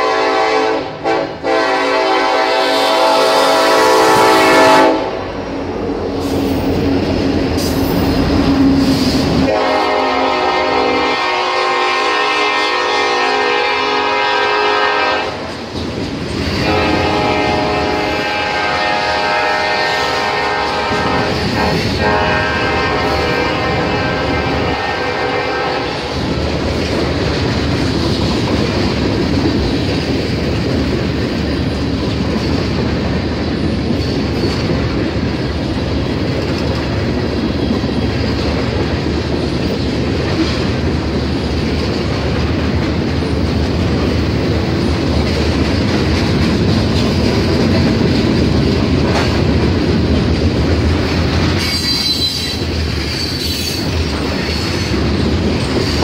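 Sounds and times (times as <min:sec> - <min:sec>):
train wheels rumbling on rail: 0:00.0 - 0:56.0
clickety-clack of rail joints: 0:13.7 - 0:56.0
high wheel squeal: 0:51.6 - 0:54.9.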